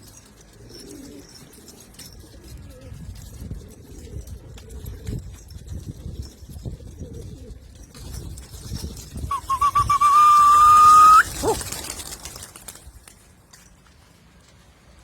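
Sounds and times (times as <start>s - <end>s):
loud warbling whistle: 9.3s - 11.6s.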